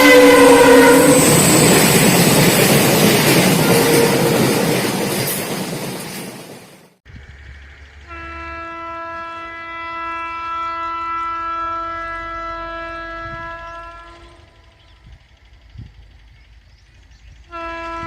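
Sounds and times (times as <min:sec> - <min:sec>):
locomotive horn blast: 0:00.0 - 0:02.0, 0:03.2 - 0:04.8, 0:08.0 - 0:15.1, 0:17.5 - 0:18.0
low train rumble: 0:00.0 - 0:18.0.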